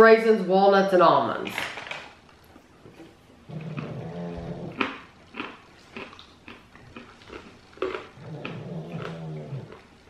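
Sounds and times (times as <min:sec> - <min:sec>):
crunchy chewing of nuts: 0:02.4 - 0:10.0.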